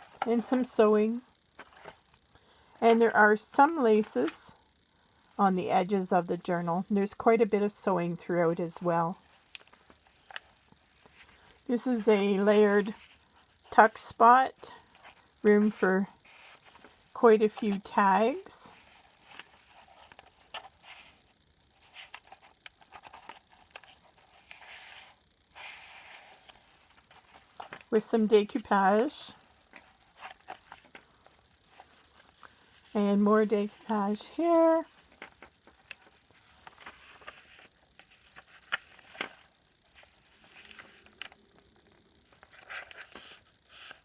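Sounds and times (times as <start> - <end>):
paper pages rustling: 14.8 - 21.2, 21.8 - 29.1, 29.7 - 41.4, 42.3 - 44.0.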